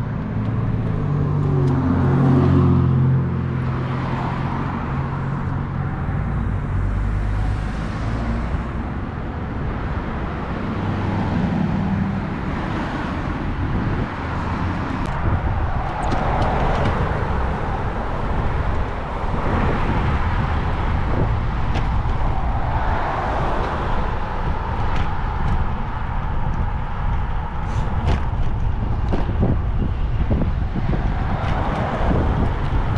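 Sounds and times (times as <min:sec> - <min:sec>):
road and traffic noise: 0:00.0 - 0:32.9
vehicle engine hum: 0:00.0 - 0:32.9.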